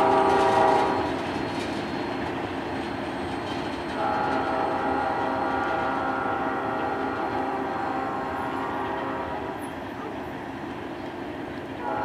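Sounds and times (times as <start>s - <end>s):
multi-note locomotive horn: 0.0s - 1.2s, 4.0s - 10.1s, 11.8s - 12.0s
freight train rumble and clatter: 0.0s - 12.0s.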